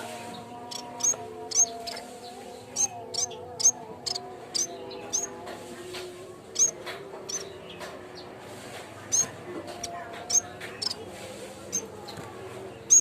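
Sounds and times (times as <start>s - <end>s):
bird chirping: 0.0s - 5.4s, 6.5s - 8.3s, 9.1s - 11.1s, 12.8s - 13.0s.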